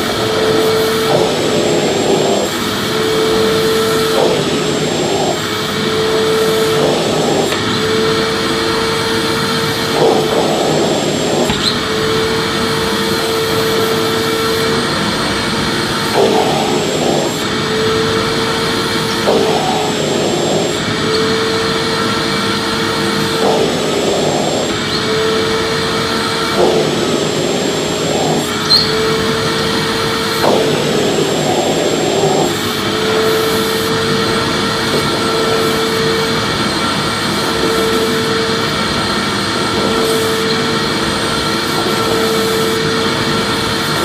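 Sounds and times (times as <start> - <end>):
vacuum cleaner running: 0.0 - 44.0.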